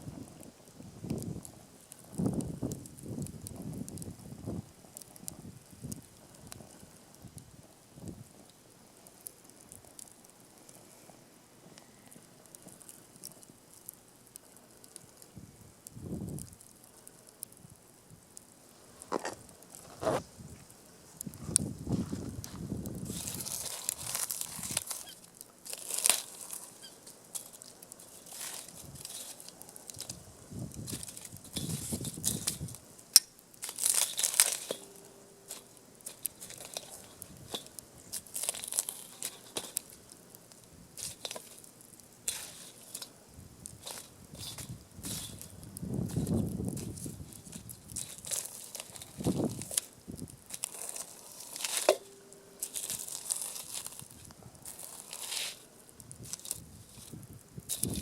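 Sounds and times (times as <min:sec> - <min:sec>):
campfire crackling: 0:00.0 - 0:58.0
kindling rustling and tearing: 0:19.0 - 0:58.0.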